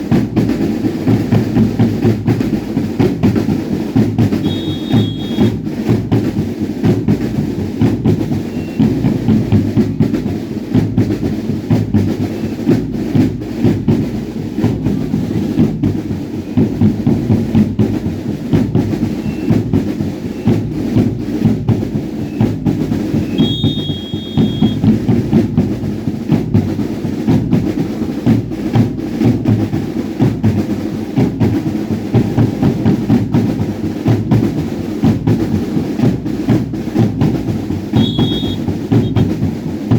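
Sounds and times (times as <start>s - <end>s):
drums beating a dance rhythm: 0.0s - 39.9s
brief high tones: 4.4s - 5.6s, 23.2s - 24.9s, 38.0s - 39.3s.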